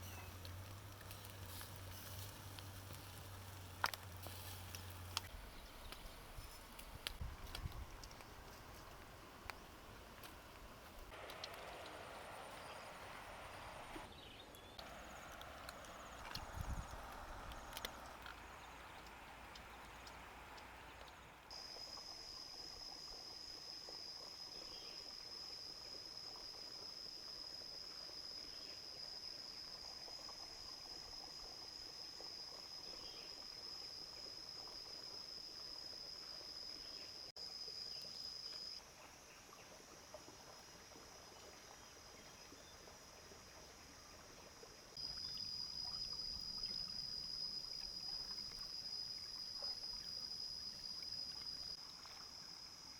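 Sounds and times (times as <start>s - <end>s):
insects buzzing: 0.0s - 25.6s, 44.9s - 52.9s.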